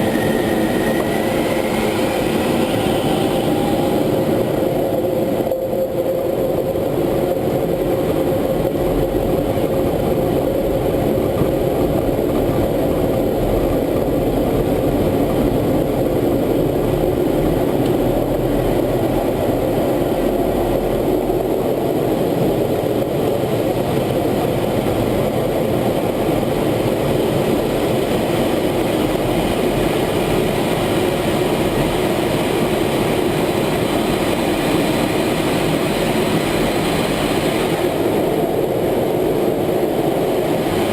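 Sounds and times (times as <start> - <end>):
jet engine running: 0.0 - 40.9.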